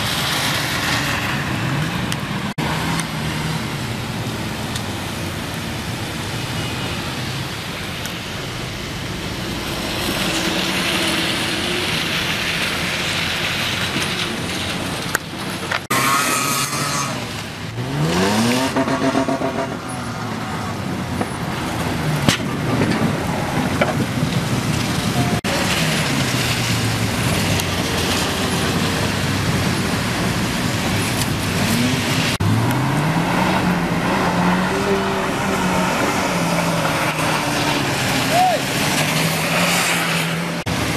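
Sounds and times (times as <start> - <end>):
off-road vehicle engine revving: 15.9 - 20.8, 25.3 - 40.9.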